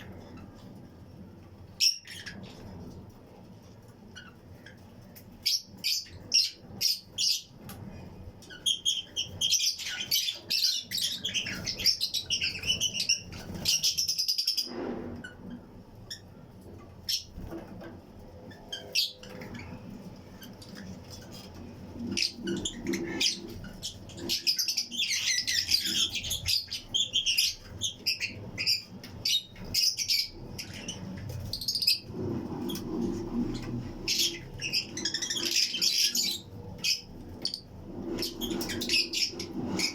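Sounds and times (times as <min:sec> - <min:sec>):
lovebirds chirping: 0:04.0 - 0:17.6, 0:18.5 - 0:39.9.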